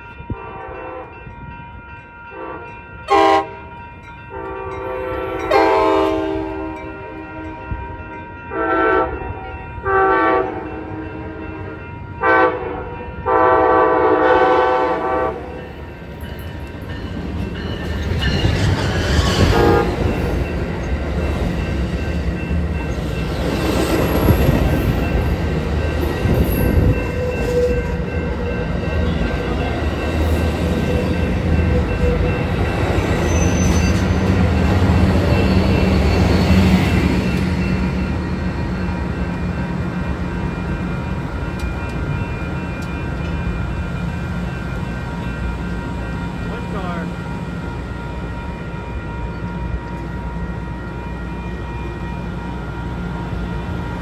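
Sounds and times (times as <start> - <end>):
train rumbling past: 0.0 - 54.0
locomotive horn blasts: 0.3 - 1.2, 2.3 - 3.7, 4.3 - 7.8, 8.5 - 11.4, 12.2 - 15.6, 19.4 - 20.2.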